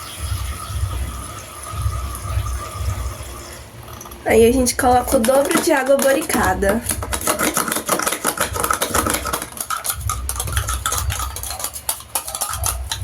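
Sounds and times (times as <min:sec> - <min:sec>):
spoon clinking against pot: 0:05.1 - 0:13.0.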